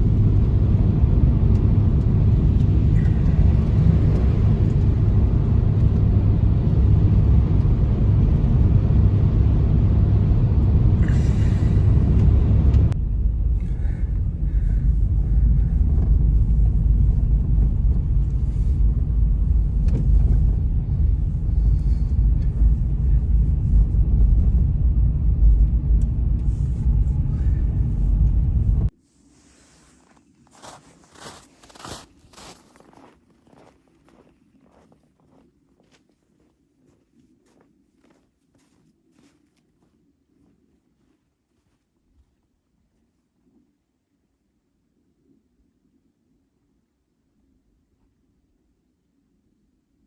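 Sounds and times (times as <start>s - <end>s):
blizzard wind rumbling: 0.0s - 35.9s.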